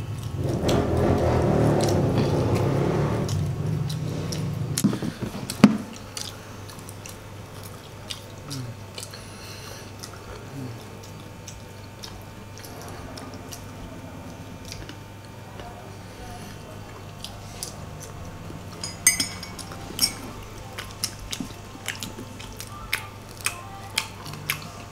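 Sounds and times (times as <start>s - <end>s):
crunchy chewing: 0.0s - 24.9s
low hum: 0.0s - 24.9s.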